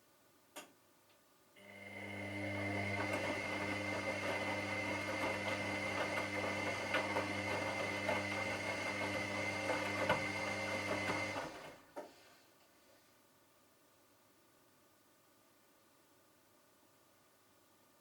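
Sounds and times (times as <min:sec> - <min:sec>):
washing machine motor humming: 0:01.6 - 0:11.8.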